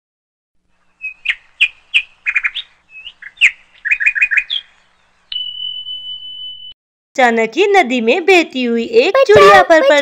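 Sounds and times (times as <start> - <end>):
bird chirping and trilling: 0.7 - 6.7.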